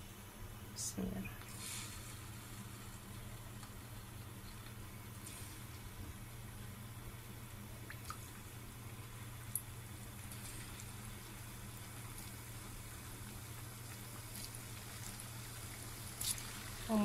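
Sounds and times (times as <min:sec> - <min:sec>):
dough sizzling in oil: 0:01.4 - 0:17.0
oil popping: 0:07.4 - 0:16.9.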